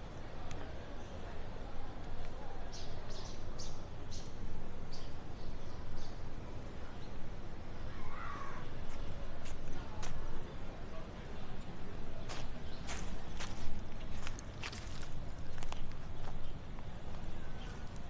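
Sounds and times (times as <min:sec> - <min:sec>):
outdoor background noise: 0:00.0 - 0:18.0
bird calling: 0:07.8 - 0:09.1.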